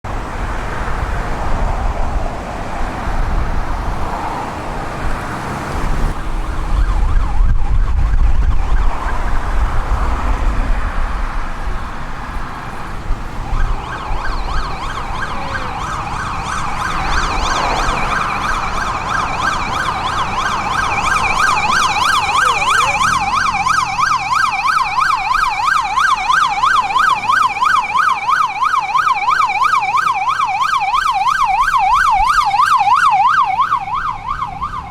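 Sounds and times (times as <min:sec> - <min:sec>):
siren wailing: 0:06.1 - 0:09.6, 0:13.2 - 0:34.9
siren yelping: 0:06.1 - 0:09.6, 0:13.2 - 0:34.9.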